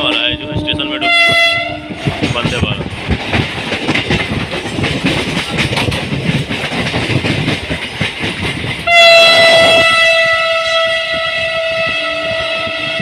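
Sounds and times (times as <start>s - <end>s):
train horn: 0.0s - 2.0s, 8.8s - 13.0s
train wheels clattering on rails: 0.0s - 13.0s.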